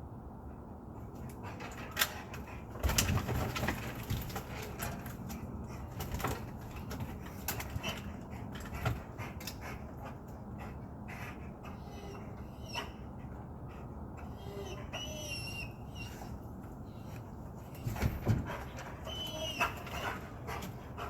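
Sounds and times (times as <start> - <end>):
animal vocal sounds: 7.1 - 21.0.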